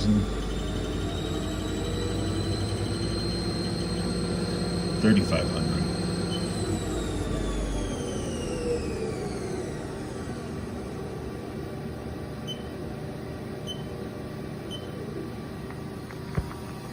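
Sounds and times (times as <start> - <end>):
lathe spindle whine winding down: 0.0 - 12.1
machine hum: 0.0 - 16.9.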